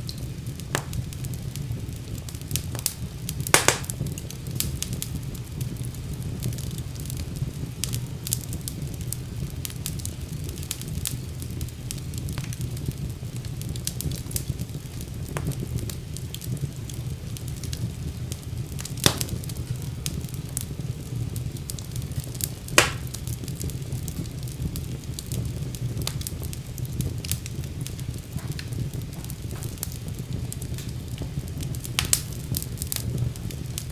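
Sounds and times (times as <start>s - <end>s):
fireplace fire crackling: 0.0s - 33.9s
loud fire pops: 0.0s - 33.9s.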